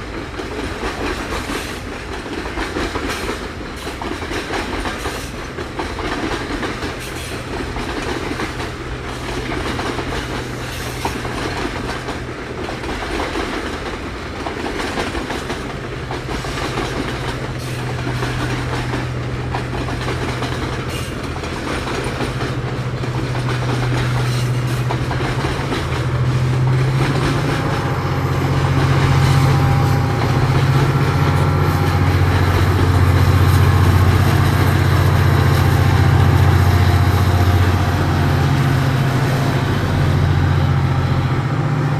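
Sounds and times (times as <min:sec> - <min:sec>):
diesel locomotive engine hum: 0:00.0 - 0:41.9
freight wagon wheels clacking: 0:05.8 - 0:35.4.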